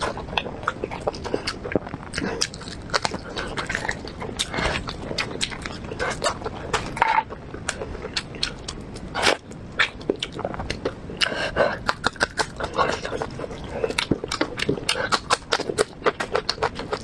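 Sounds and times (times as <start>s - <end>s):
chewing and biting: 0.0s - 17.0s
mouth clicks and smacks: 7.7s - 17.0s.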